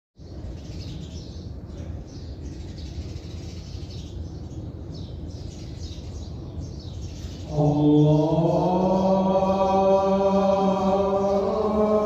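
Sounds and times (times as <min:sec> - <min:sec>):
small birds chirping: 0:00.2 - 0:09.2.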